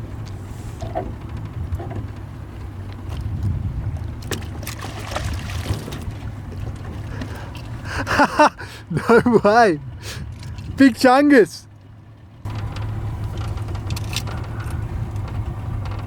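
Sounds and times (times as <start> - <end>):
boat engine rumble: 0.0 - 16.0
wind on microphone: 3.2 - 4.2.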